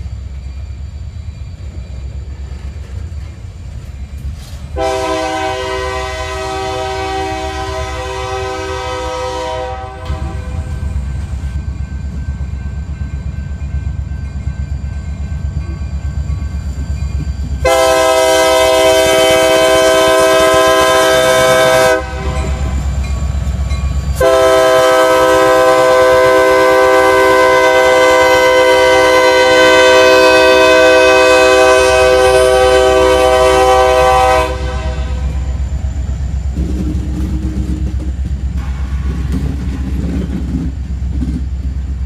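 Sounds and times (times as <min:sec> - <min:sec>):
locomotive multi-chime air horn: 0:04.8 - 0:10.9, 0:11.9 - 0:35.8.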